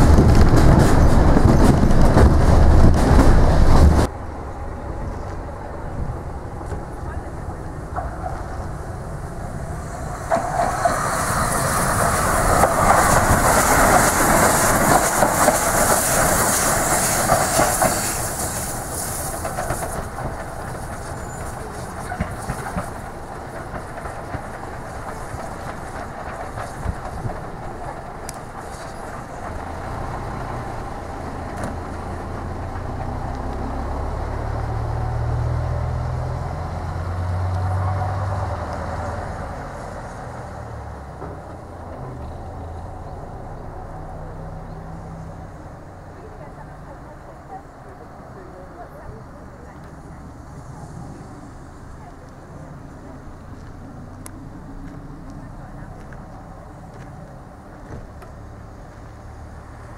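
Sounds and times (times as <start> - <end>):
train rail clatter: 0.0 - 33.9, 37.5 - 59.9
strong hiss: 5.8 - 23.5.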